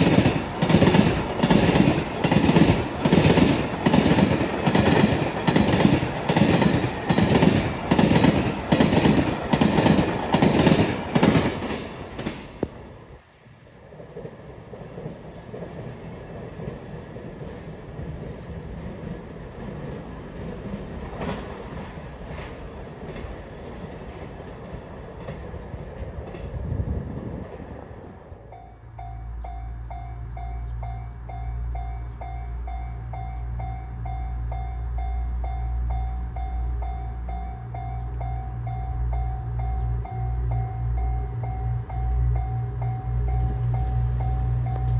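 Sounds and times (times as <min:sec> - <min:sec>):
train wheels clacking on rails: 0:00.0 - 0:12.8, 0:14.0 - 0:26.7
train rumbling: 0:00.0 - 0:44.9.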